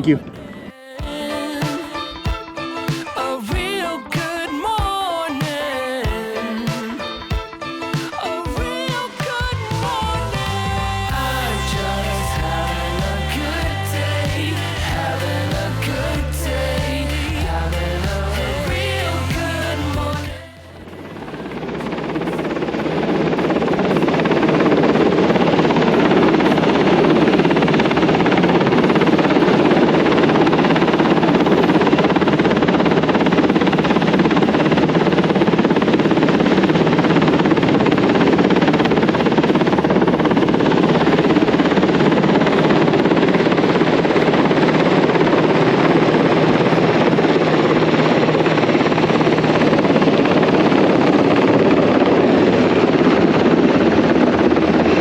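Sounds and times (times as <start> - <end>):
helicopter rotor and engine: 21.2 - 55.0.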